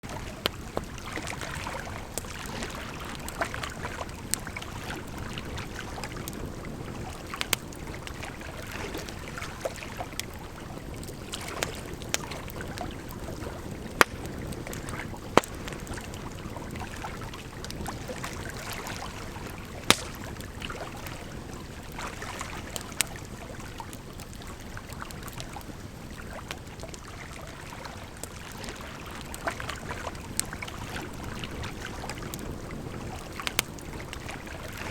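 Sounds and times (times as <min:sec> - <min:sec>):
flowing water rushing: 0:00.0 - 0:25.2
wood fire crackling and popping: 0:00.1 - 0:21.1, 0:28.2 - 0:34.9.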